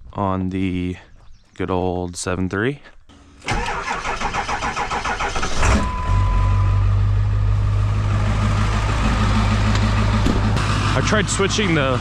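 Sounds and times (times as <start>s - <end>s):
truck engine idling: 3.1s - 12.0s.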